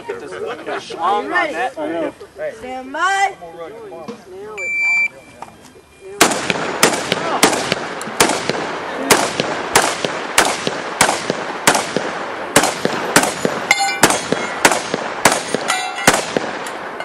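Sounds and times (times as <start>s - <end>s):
shotgun firing rapidly: 6.2s - 16.6s
short metallic rings: 13.7s - 14.6s, 15.5s - 16.2s.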